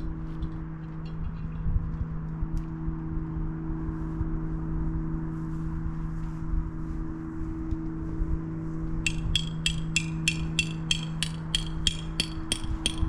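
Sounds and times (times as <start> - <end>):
mechanical hum: 0.0 - 13.0
sharp ringing strikes: 9.1 - 13.0.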